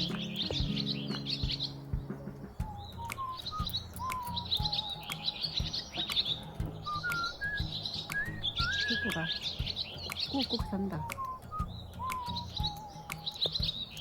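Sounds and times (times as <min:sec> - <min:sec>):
short whistled notes: 0:00.0 - 0:09.8, 0:10.5 - 0:14.0
background music: 0:00.0 - 0:14.0
songbirds chirping and twittering: 0:00.0 - 0:14.0.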